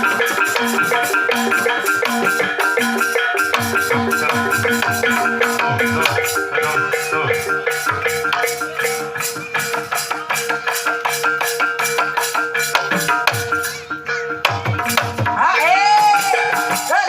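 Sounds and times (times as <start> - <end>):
drum strokes dropping in pitch: 0.0 - 15.5
struck metal gamelan notes: 0.0 - 17.0.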